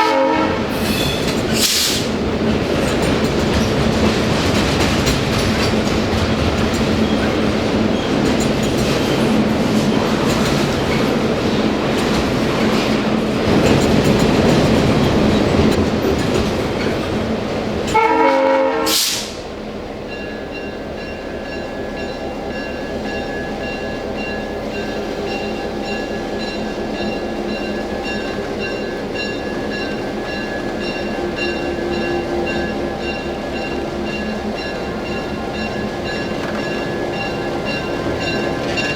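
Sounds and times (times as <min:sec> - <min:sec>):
train horn blast: 0:00.0 - 0:01.2, 0:17.9 - 0:19.4
train rumbling on rails: 0:00.0 - 0:38.9.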